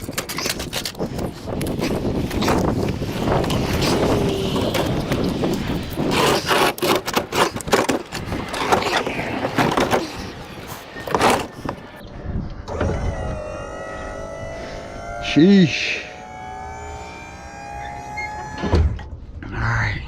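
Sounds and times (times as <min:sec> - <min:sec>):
heavy appliance scraping into truck bed: 0:01.8 - 0:12.0.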